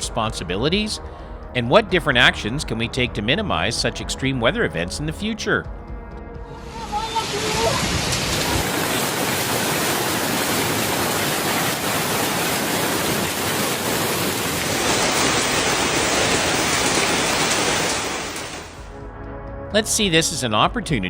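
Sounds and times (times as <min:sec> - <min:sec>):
heavy rain: 0:06.5 - 0:18.9.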